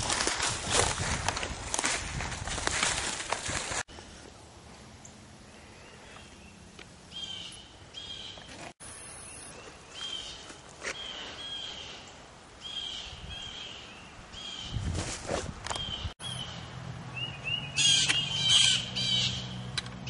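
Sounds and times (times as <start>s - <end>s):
bird chirping: 5.0s - 14.8s, 15.7s - 19.7s.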